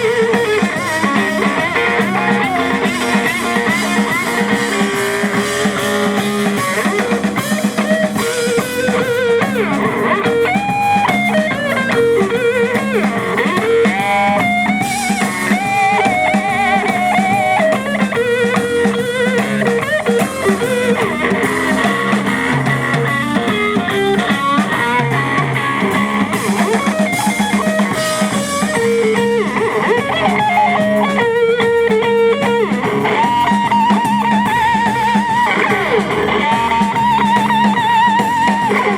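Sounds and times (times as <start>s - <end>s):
bass guitar: 0.0s - 38.9s
drum kit: 0.0s - 38.9s
lead electric guitar: 0.0s - 38.9s.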